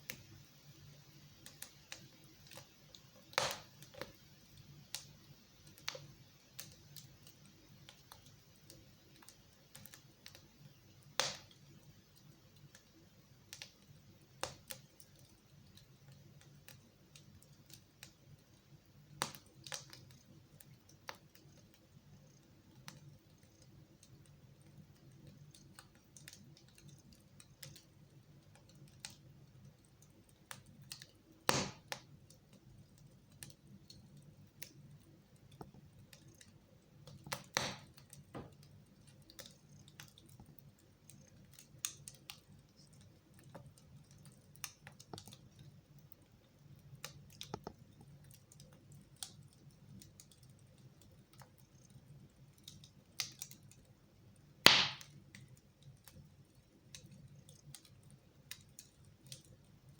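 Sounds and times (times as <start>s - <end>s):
wood fire crackling: 0.0s - 59.9s
loud fire pops: 3.3s - 3.8s, 11.2s - 11.5s, 31.5s - 32.0s, 37.3s - 38.5s, 54.6s - 55.2s.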